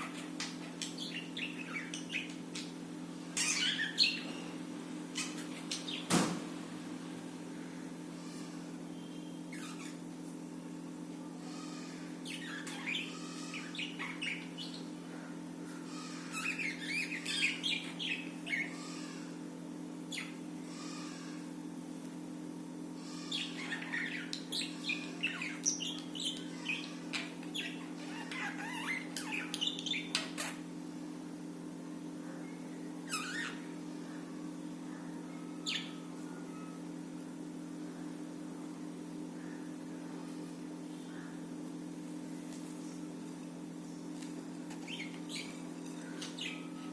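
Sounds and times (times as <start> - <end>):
budgerigars chirping and warbling: 0.0 - 4.5, 5.1 - 6.2, 9.5 - 10.0, 12.2 - 15.0, 15.9 - 19.3, 20.1 - 21.1, 23.0 - 30.7, 33.0 - 33.7, 35.6 - 36.1, 44.7 - 46.8
steady low hum: 0.0 - 46.9.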